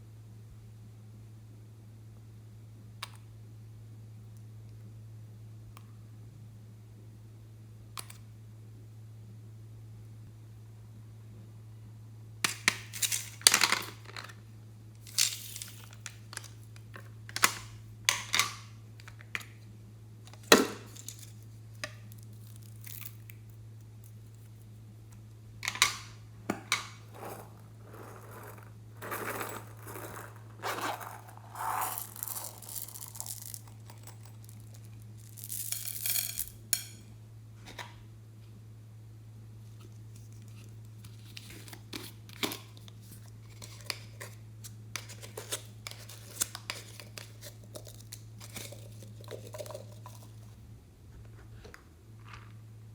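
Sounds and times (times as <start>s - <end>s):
low electrical hum: 0.0s - 52.9s
hands crinkling slime: 27.1s - 34.9s.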